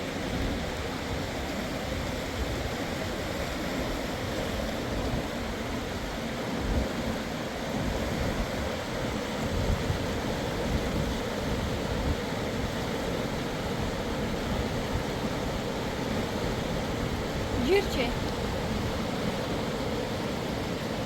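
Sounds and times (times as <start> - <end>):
rushing river water: 0.0 - 21.0
wind buffeting microphone: 0.3 - 19.3.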